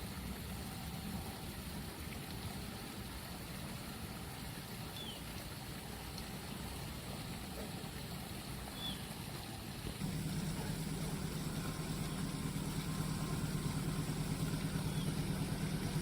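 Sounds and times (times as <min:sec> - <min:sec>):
vehicle engines idling: 0:10.0 - 0:16.0.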